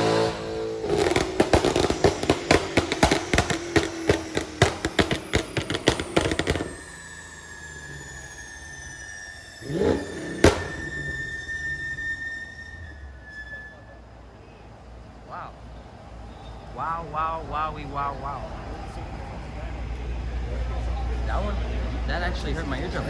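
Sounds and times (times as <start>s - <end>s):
car exhaust crackling and popping: 0.0s - 13.0s
faint rising whine: 1.4s - 13.4s.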